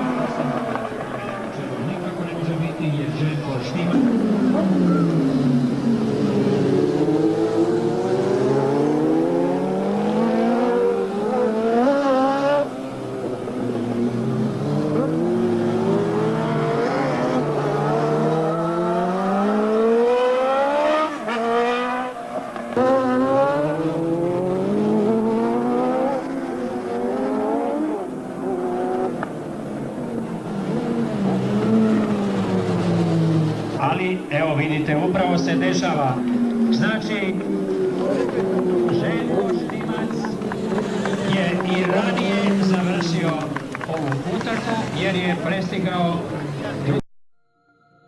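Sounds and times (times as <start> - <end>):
racing motorcycles at full throttle: 0.0 - 47.0.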